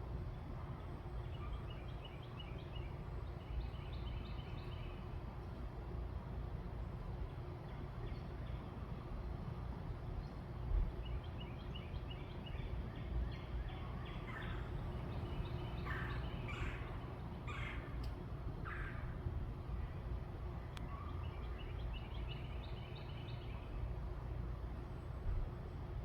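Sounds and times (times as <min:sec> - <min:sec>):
low outdoor rumble: 0:00.0 - 0:26.0
birds calling: 0:11.0 - 0:19.7.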